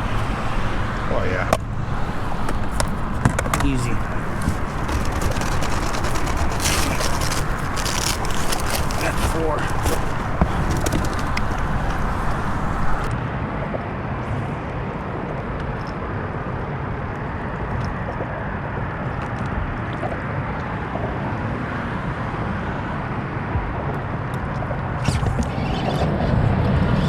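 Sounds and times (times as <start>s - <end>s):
low outdoor background noise: 0.0s - 13.3s.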